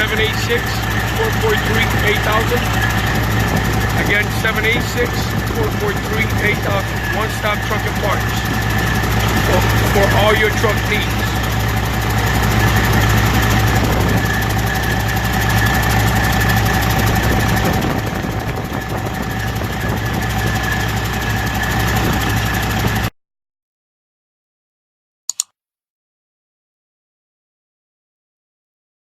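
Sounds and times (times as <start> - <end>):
diesel engine idling: 0.0 - 23.1
double click: 25.3 - 25.5.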